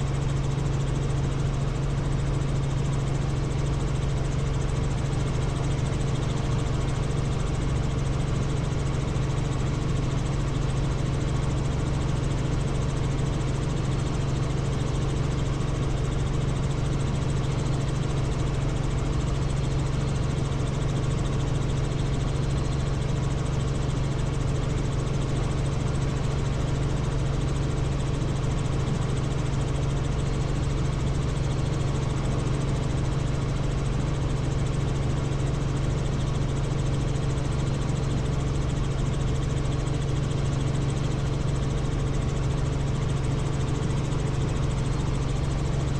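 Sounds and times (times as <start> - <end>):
helicopter rotor drone: 0.0 - 45.9.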